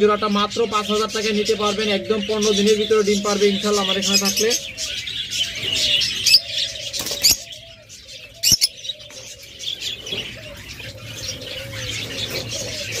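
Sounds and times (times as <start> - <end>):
caged birds chirping: 0.0 - 13.0
low wavering cooing: 4.3 - 13.0.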